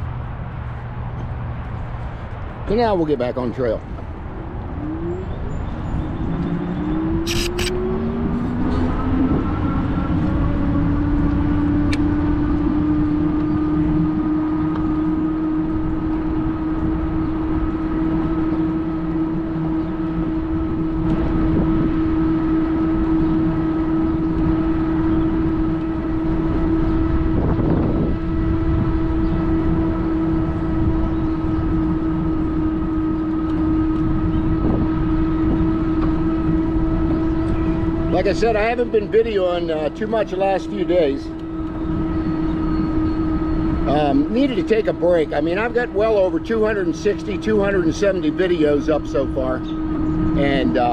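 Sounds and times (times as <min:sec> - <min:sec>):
wind: 0:00.0 - 0:50.9
electric bike motor whine: 0:05.3 - 0:11.4, 0:15.1 - 0:45.5.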